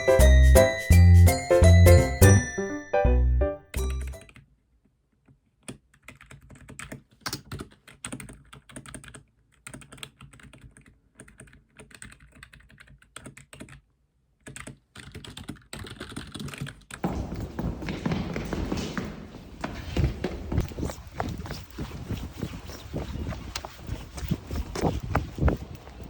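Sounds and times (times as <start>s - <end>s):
computer keyboard typing: 5.7s - 17.0s.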